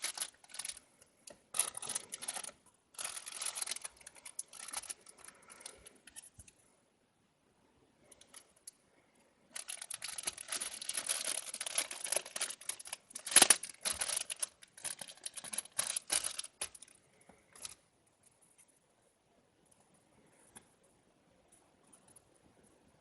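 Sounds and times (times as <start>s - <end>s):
packaging crinkling and rustling: 0.0s - 0.9s, 1.5s - 6.5s, 9.5s - 17.8s.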